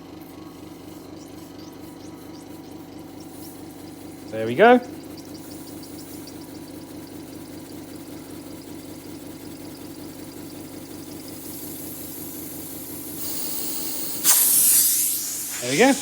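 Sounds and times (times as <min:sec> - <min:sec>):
model steam engine ticking: 0:00.9 - 0:16.0
air hissing: 0:11.1 - 0:16.0.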